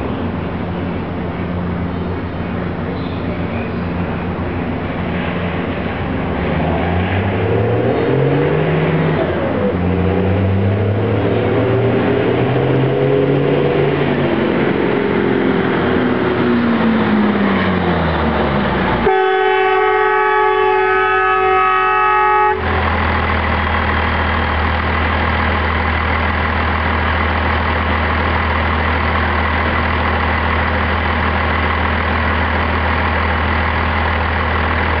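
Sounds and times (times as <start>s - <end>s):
diesel truck engine: 0.0s - 35.0s
truck horn: 19.0s - 23.0s.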